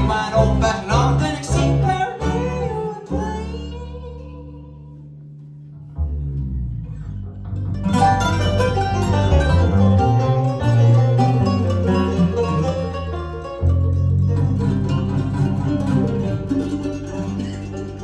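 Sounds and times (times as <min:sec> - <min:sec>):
person singing: 0:00.0 - 0:05.0
acoustic guitar: 0:00.0 - 0:06.2, 0:06.8 - 0:18.0
banjo: 0:00.0 - 0:18.0.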